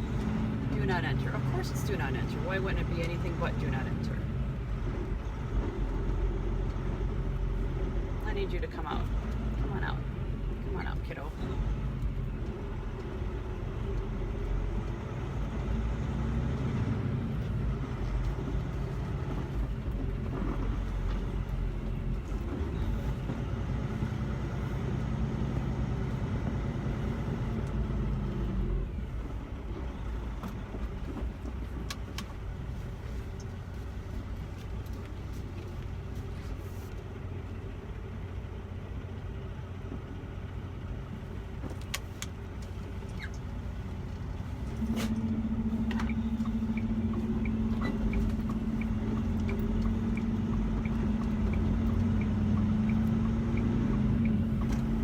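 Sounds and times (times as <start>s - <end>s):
diesel truck engine from cab: 0.0s - 55.0s.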